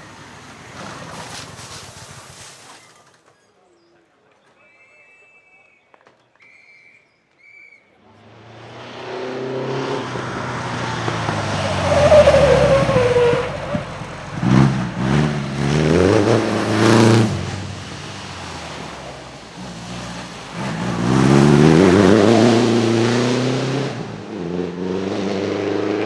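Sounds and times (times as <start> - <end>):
racing car engine at full throttle: 8.1 - 26.0.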